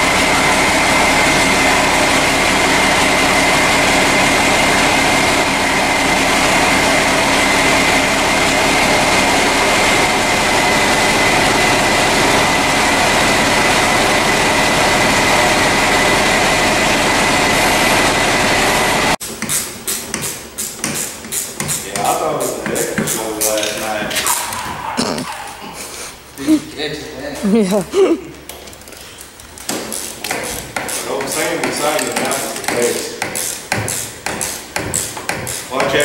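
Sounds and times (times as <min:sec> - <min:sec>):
engine running: 0:00.0 - 0:19.2.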